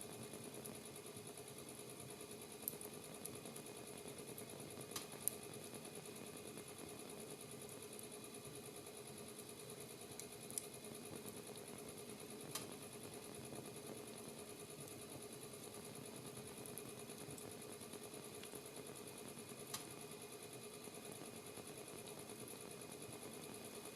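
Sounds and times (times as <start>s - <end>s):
fire crackling and popping: 2.6s - 2.9s, 4.9s - 5.4s, 10.2s - 10.7s.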